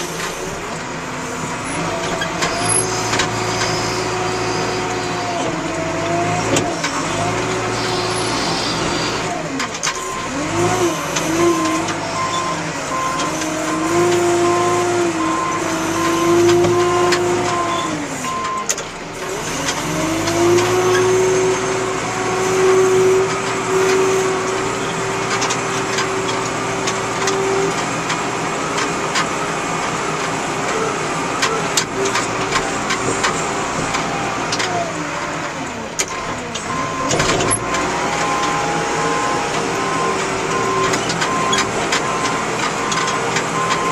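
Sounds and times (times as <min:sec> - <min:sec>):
backhoe diesel engine revving: 0:00.0 - 0:43.9
reversing alarm beeping: 0:12.1 - 0:13.4, 0:36.6 - 0:43.9.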